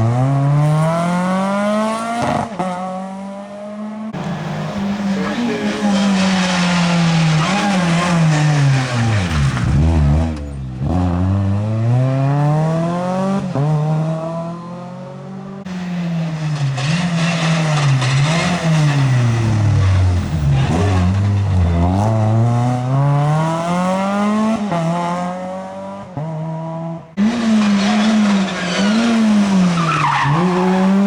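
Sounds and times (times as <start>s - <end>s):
rally car engine revving: 0.0s - 31.0s
tyre squeal: 4.2s - 10.6s, 16.5s - 22.2s, 27.2s - 31.0s.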